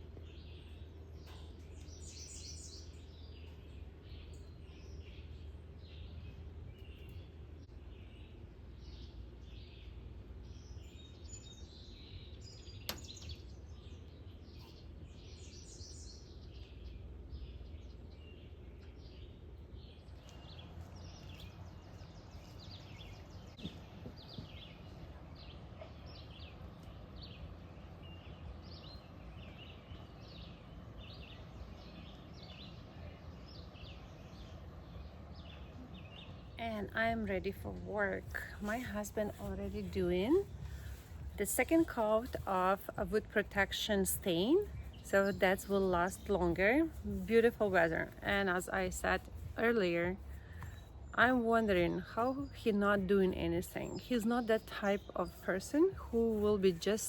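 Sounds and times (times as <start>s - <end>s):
birds chirping: 0.0s - 57.0s
steady low rumble: 0.0s - 57.0s.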